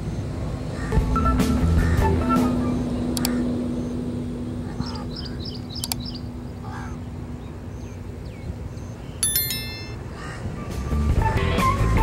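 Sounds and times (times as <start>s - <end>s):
birds chirping: 0.8s - 10.5s
steady low hum: 2.6s - 10.2s.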